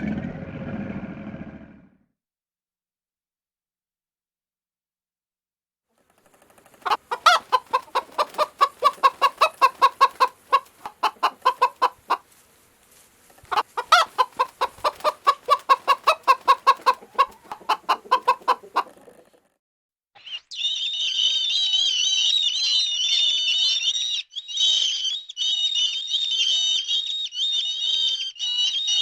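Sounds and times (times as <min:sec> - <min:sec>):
chicken clucking rapidly: 0:06.3 - 0:12.3, 0:13.4 - 0:19.5.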